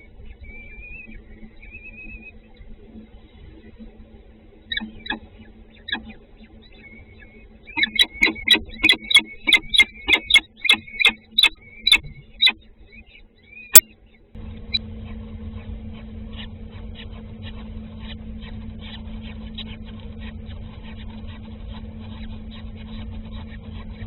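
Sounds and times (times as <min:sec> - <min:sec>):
steady low hum: 0:00.0 - 0:24.0
nestling birds chirping: 0:04.7 - 0:05.2, 0:07.8 - 0:12.7
sharp click: 0:07.8 - 0:12.6.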